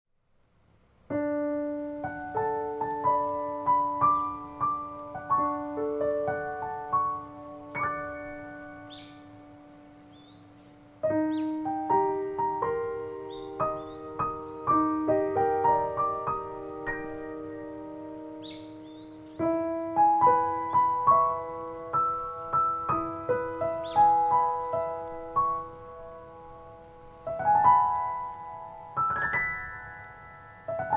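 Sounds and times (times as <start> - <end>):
slow piano melody: 0.6 - 30.9
high bird call: 7.6 - 9.4, 10.1 - 12.2, 13.0 - 17.5, 18.3 - 25.8.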